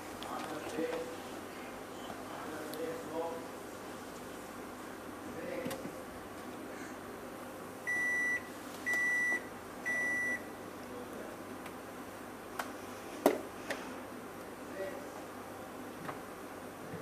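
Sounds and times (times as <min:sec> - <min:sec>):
refrigerator alarm beeping: 0:07.9 - 0:10.5.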